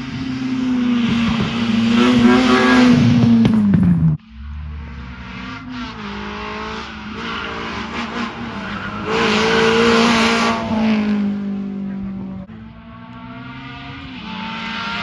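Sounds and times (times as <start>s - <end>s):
tyre noise: 0.0s - 4.2s
rally car engine running hard: 0.0s - 15.0s.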